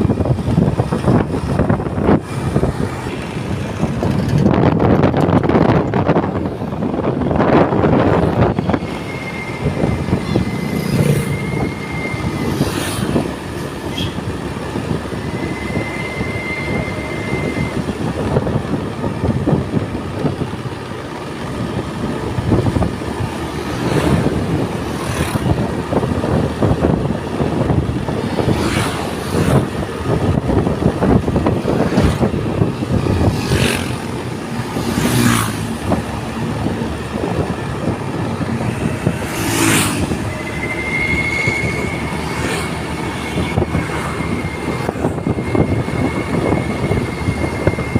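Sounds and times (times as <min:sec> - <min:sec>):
excavator diesel engine running: 0:00.0 - 0:47.9
high steady tone: 0:07.0 - 0:13.8, 0:15.0 - 0:18.2, 0:32.2 - 0:47.9.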